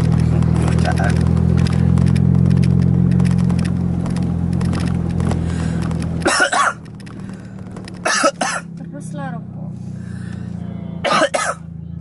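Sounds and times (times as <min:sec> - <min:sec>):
small clicks and rattles: 0:00.0 - 0:08.1
vehicle engine humming: 0:00.0 - 0:12.0.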